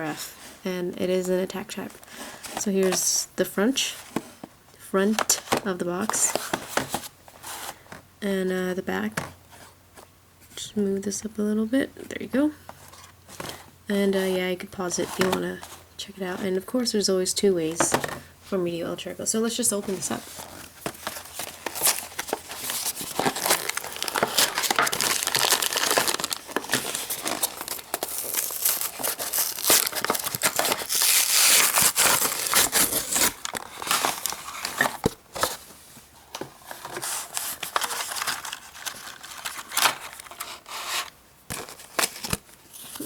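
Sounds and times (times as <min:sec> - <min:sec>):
packaging crinkling and tearing: 0:20.5 - 0:35.6, 0:36.7 - 0:43.0.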